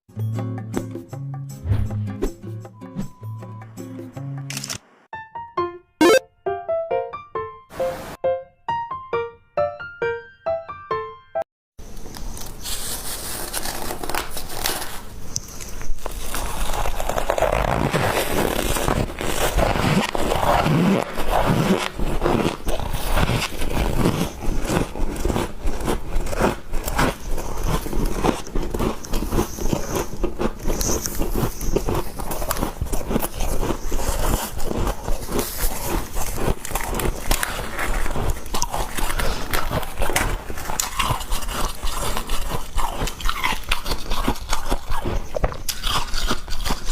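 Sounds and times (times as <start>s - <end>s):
chewing crunchy ice: 15.7s - 46.9s.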